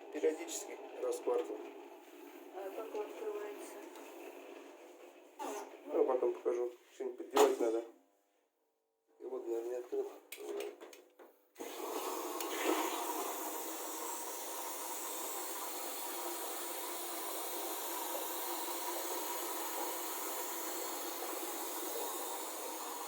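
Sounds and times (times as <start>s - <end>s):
water rushing into washing machine: 11.6s - 23.0s.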